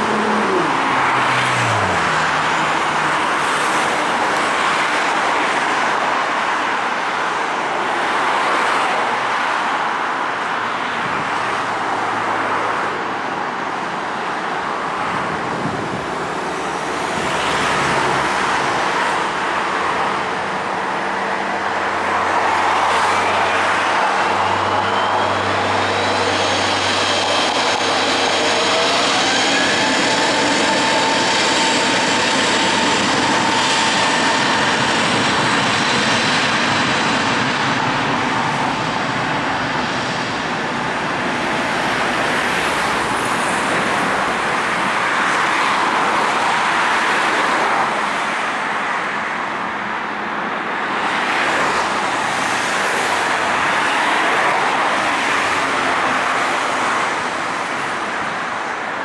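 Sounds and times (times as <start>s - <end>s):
road traffic: 0.0s - 59.0s
jet engines spooling up: 24.0s - 44.7s.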